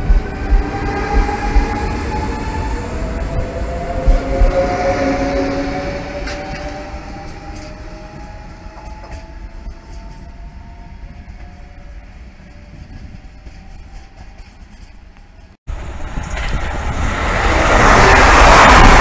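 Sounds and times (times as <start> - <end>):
low rail rumble: 0.0 - 19.0.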